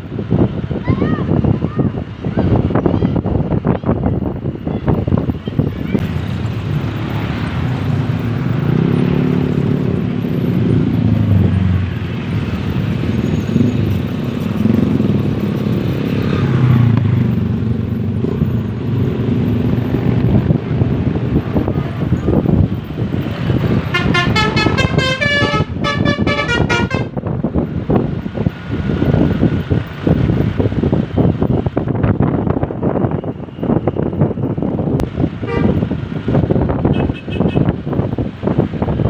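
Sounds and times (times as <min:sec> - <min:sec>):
vehicle engines running: 0:00.0 - 0:39.0
musical bus horn: 0:23.7 - 0:27.3, 0:35.4 - 0:35.9, 0:36.8 - 0:37.8.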